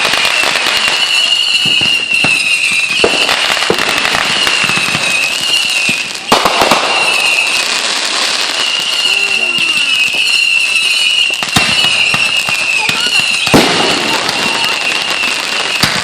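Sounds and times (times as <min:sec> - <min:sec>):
firecrackers crackling and popping: 0:00.0 - 0:16.0
sharp firework bang: 0:13.0 - 0:14.7.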